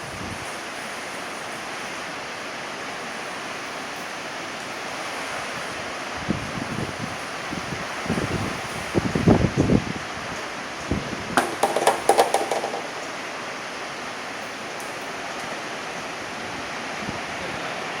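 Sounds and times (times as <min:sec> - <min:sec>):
wind rumble on microphone: 0:00.0 - 0:00.6, 0:05.6 - 0:12.5, 0:16.4 - 0:18.0
heavy rain hissing: 0:00.0 - 0:18.0
clattering clicks: 0:11.4 - 0:13.1.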